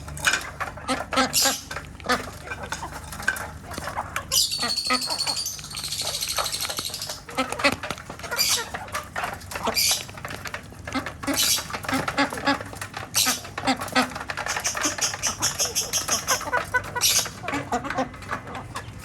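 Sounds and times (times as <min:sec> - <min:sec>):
ducks quacking: 0:00.0 - 0:19.0
shrill squawks: 0:04.3 - 0:07.2.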